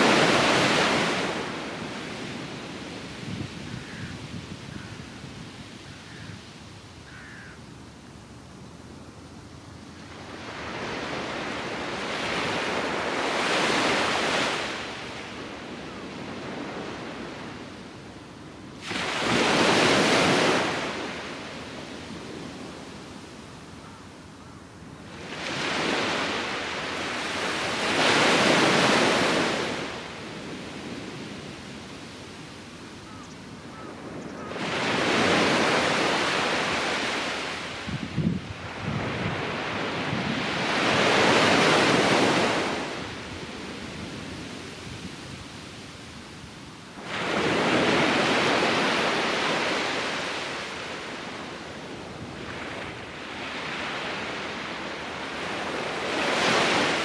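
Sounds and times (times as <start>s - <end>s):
ocean waves breaking: 0.0s - 4.0s, 10.1s - 17.8s, 18.8s - 23.0s, 25.1s - 32.4s, 33.1s - 57.0s
wind buffeting microphone: 0.0s - 6.5s, 37.7s - 45.7s
steady surf hiss: 0.0s - 38.8s.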